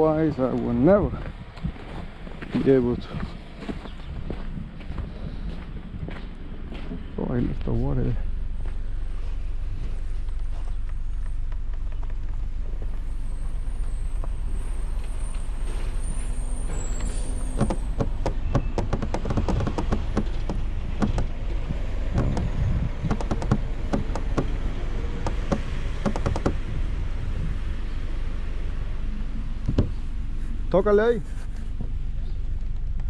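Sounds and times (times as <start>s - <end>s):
low rumble: 3.2s - 33.0s.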